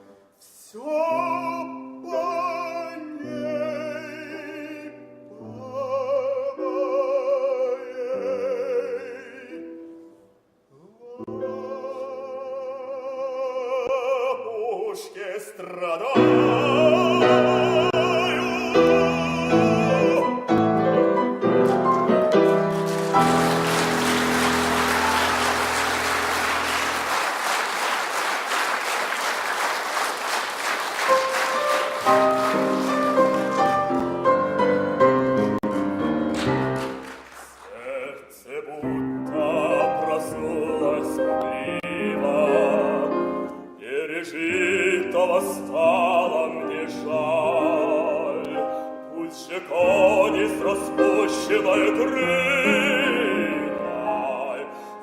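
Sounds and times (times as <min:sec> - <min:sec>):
opera singer with vibrato: 0:00.4 - 0:09.8, 0:10.8 - 0:20.5, 0:37.6 - 0:55.0
piano playing: 0:16.1 - 0:37.4, 0:38.8 - 0:55.0
sustained piano chords: 0:16.6 - 0:27.5
audience applauding: 0:21.6 - 0:34.6, 0:36.2 - 0:38.1.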